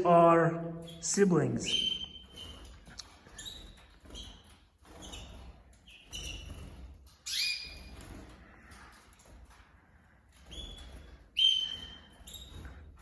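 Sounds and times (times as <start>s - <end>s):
canaries chirping and calling: 0.0s - 13.0s.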